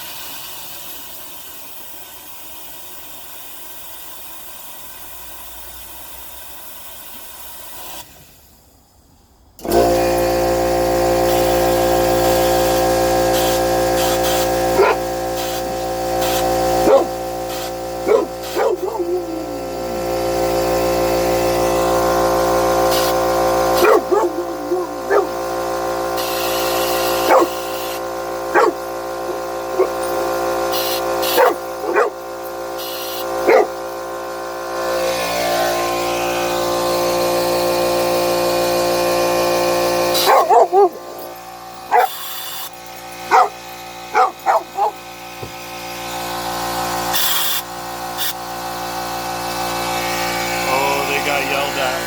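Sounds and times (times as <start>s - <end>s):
air compressor humming: 9.6s - 52.0s
compressed air hissing from hose: 12.2s - 20.6s, 22.9s - 25.5s, 26.2s - 28.0s, 28.6s - 33.8s, 47.1s - 47.6s
dogs barking: 14.0s - 21.3s, 22.0s - 34.0s, 39.8s - 45.6s.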